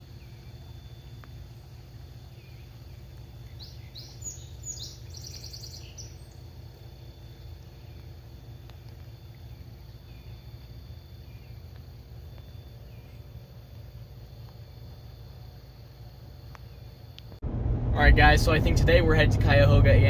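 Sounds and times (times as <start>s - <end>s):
bird singing: 0.0s - 15.3s
low background rumble: 0.0s - 20.0s.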